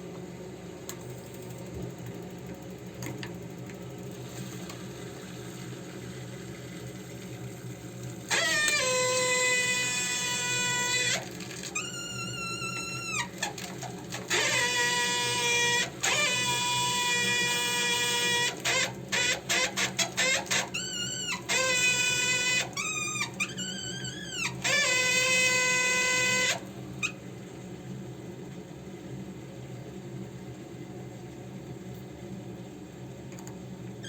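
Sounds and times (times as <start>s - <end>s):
boiler valve whining: 7.2s - 27.3s.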